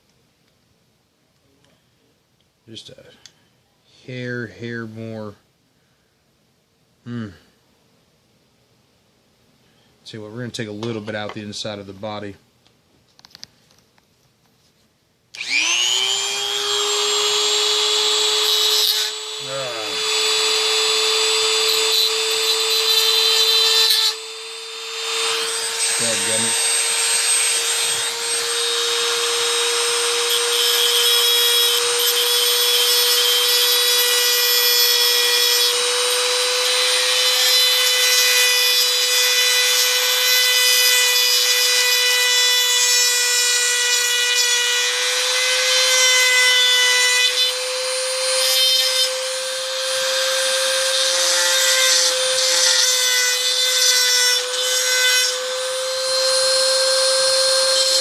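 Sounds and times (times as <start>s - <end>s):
bit grinding metal: 15.4s - 58.0s
rotary tool motor whine: 15.4s - 58.0s.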